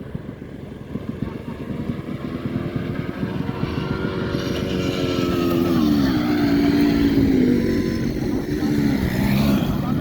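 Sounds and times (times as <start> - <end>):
small engine running roughly: 0.0 - 10.0.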